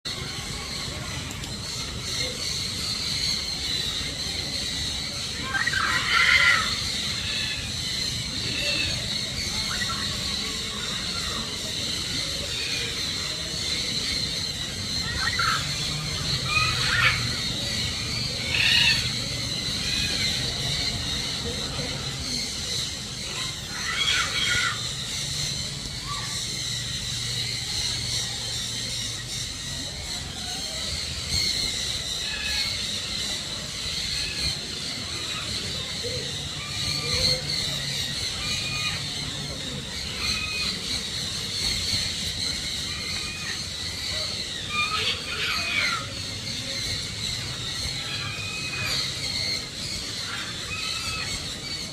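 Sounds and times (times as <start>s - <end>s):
birds squawking: 0.1s - 51.9s
bird squealing call: 2.2s - 20.9s, 22.3s - 28.6s.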